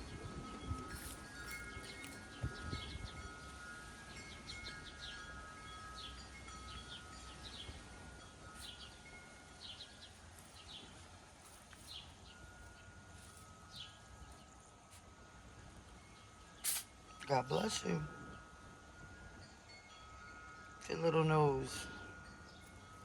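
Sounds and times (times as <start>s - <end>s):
faint chimes ringing: 0.0s - 23.0s
short high chirps: 16.6s - 16.9s.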